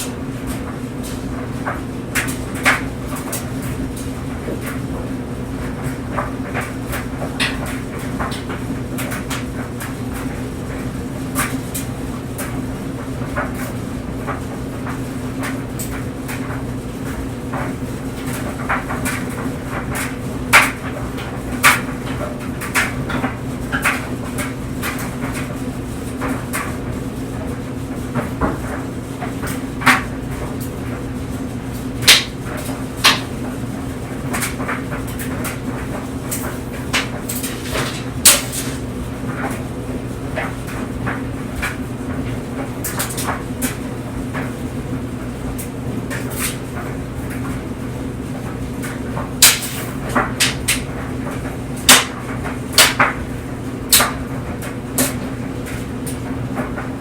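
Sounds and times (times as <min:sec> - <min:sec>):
clothes dryer humming: 0:00.0 - 0:57.0
louder thumps in dryer: 0:27.4 - 0:47.7, 0:48.4 - 0:57.0.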